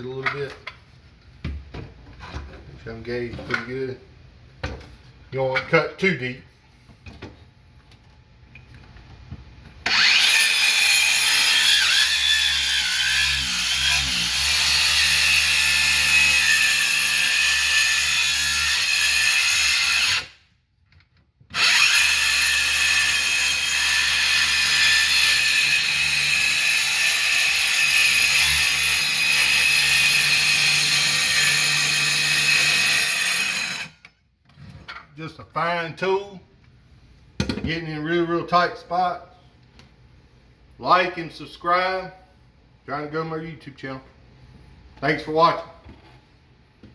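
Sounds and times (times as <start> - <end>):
circular saw cutting wood: 9.8 - 20.4, 21.5 - 34.0.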